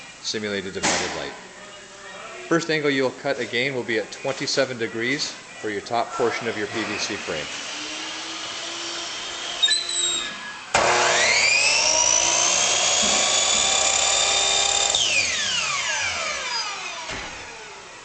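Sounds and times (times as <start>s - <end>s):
miter saw motor whining: 7.1s - 17.8s.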